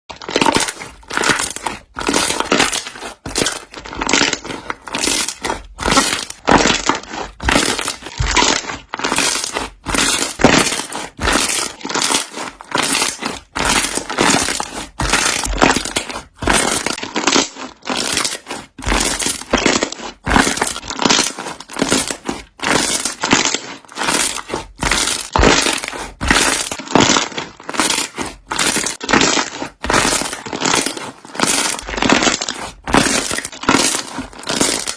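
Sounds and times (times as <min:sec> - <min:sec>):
slime air bubbles popping: 0:00.2 - 0:27.2.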